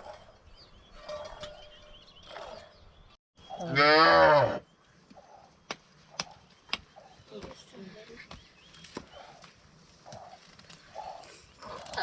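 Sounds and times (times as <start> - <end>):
cow mooing: 3.6 - 4.6.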